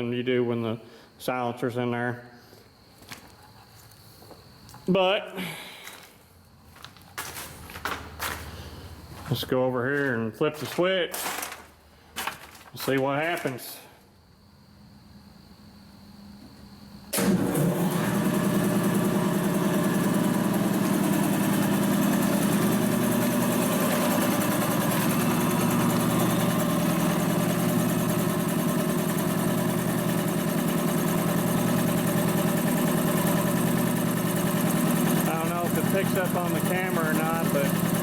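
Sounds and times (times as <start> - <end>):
air compressor running: 16.5 - 38.0.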